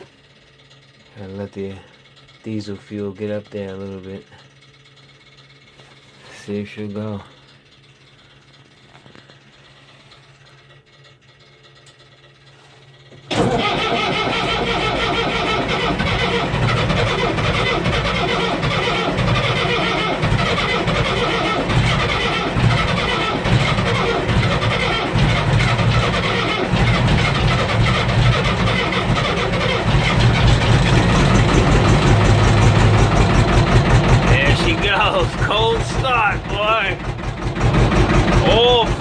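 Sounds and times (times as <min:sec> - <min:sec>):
diesel engine starting and running: 0:11.8 - 0:39.0.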